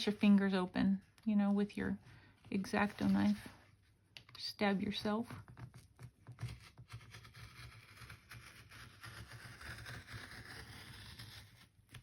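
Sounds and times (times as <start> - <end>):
craft knife scraping rasp: 6.9 - 11.6.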